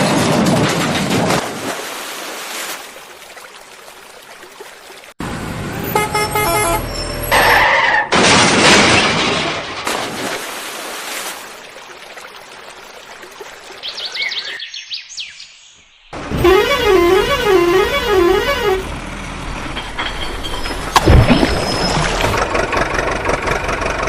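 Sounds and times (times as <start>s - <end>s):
cartoon horn toots: 5.8s - 7.4s, 16.3s - 18.9s
warbling siren-like tone: 16.4s - 18.8s.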